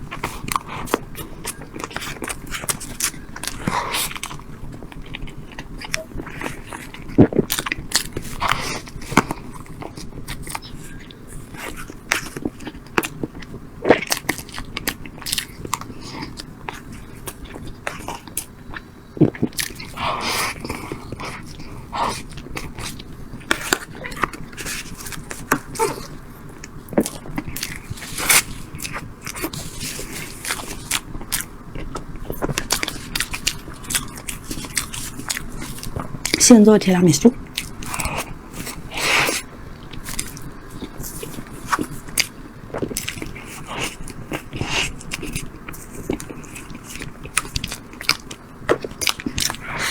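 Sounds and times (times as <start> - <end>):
biting and chewing: 0.0 - 49.9.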